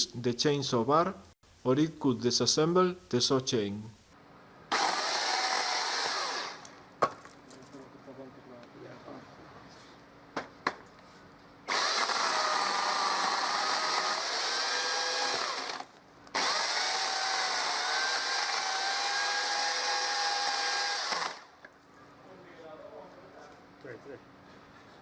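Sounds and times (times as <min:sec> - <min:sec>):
chainsaw cutting branches: 0:04.7 - 0:06.8, 0:11.7 - 0:21.6.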